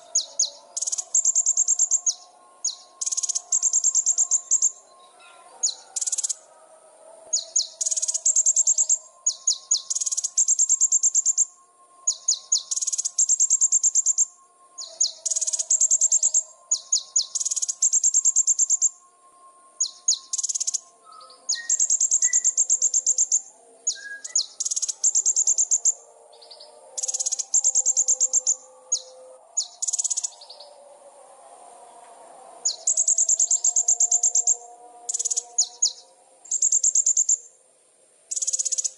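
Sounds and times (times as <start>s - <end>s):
songbird trilling: 0.0s - 6.4s, 12.1s - 18.9s, 19.8s - 30.7s.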